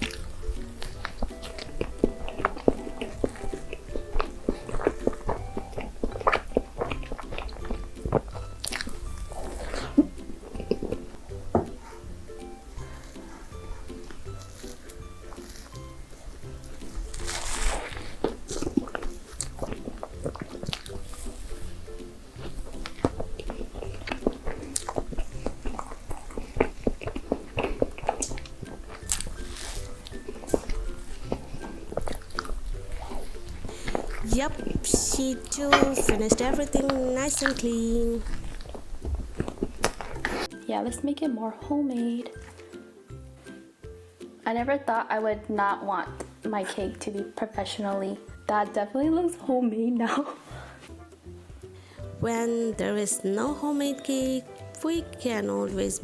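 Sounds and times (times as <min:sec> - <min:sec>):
mouth clicks: 0:00.0 - 0:40.6
person chewing cake: 0:00.0 - 0:40.6, 0:42.2 - 0:44.0.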